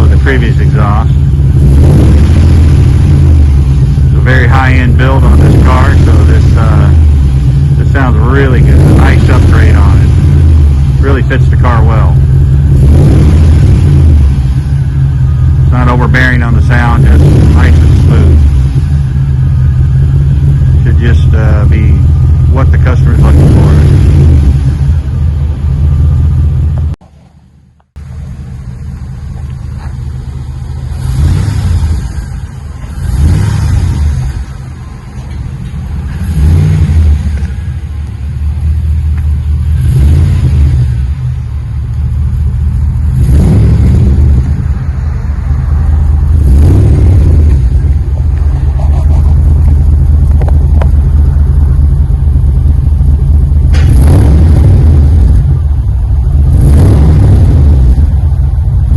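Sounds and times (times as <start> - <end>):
engine idling and revving: 0.0 - 58.9.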